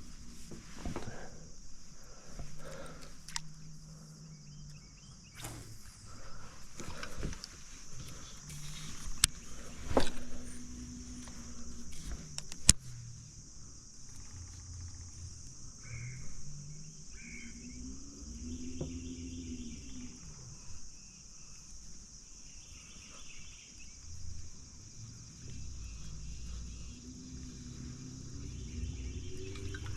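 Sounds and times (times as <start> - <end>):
high insect drone: 0.0 - 29.9
short bird chirps: 4.4 - 6.1.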